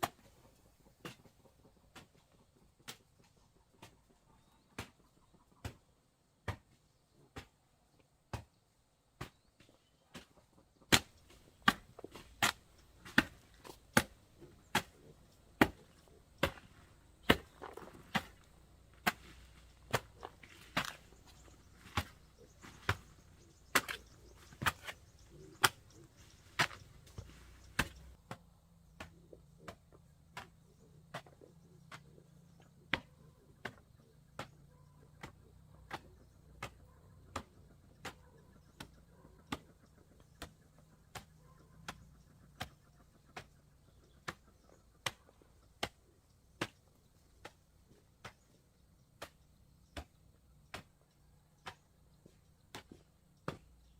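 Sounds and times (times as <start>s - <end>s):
chopping strikes on wood: 6.4s - 6.8s, 10.9s - 28.4s, 46.6s - 46.8s, 51.6s - 53.7s.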